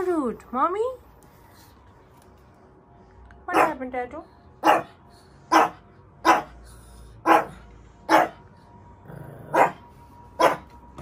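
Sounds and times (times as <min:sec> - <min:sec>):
dog barking angrily: 0:03.5 - 0:03.8, 0:04.6 - 0:06.6, 0:07.2 - 0:08.4, 0:09.4 - 0:09.8, 0:10.4 - 0:10.7.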